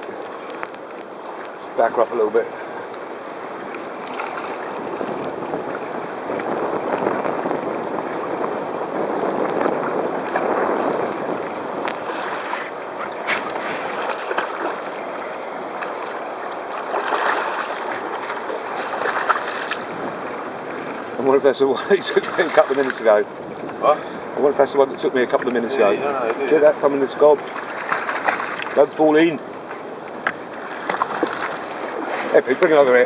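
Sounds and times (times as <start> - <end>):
water sloshing against a boat: 0.0 - 33.0
sharp splashes: 9.8 - 21.0, 21.8 - 23.2, 27.3 - 29.4.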